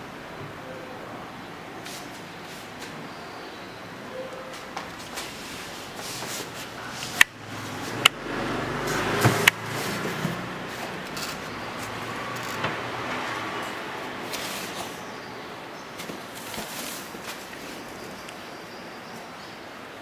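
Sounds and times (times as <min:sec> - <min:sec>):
paper shredder running: 0:06.8 - 0:15.0.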